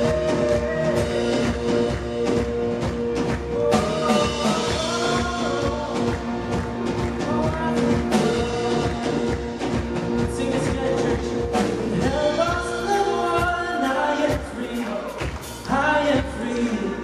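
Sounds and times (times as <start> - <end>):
drum kit steady beat: 0.0 - 16.8
live rock band playing: 0.0 - 17.0.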